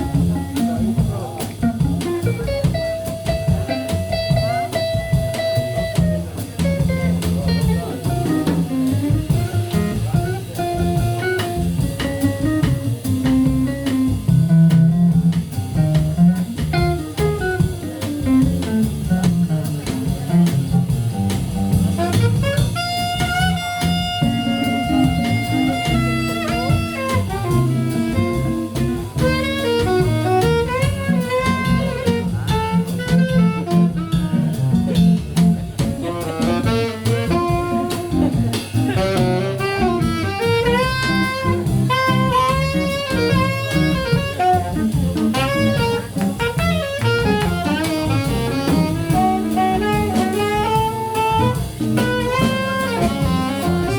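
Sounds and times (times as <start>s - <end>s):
drum kit: 0.0s - 53.9s
walking double bass: 0.0s - 53.9s
saxophone long held notes: 22.1s - 34.2s, 36.1s - 53.9s.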